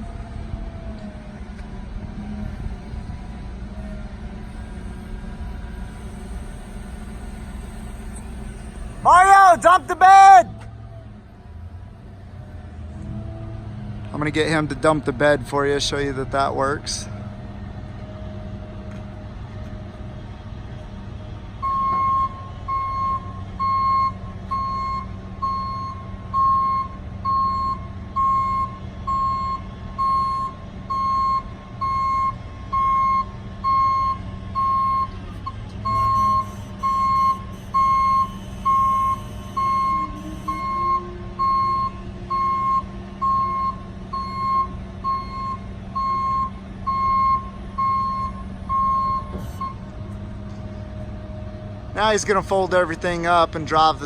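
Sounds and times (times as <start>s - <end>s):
truck engine running: 0.0s - 54.0s
warning beeper: 6.0s - 10.5s.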